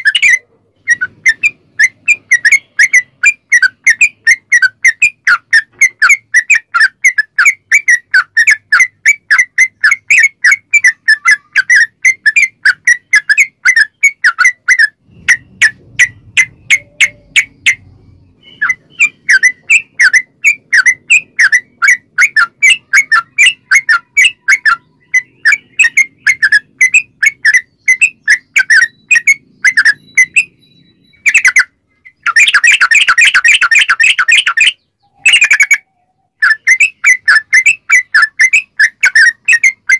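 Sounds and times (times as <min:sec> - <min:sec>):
bulbul chattering calls: 0:00.0 - 0:39.9.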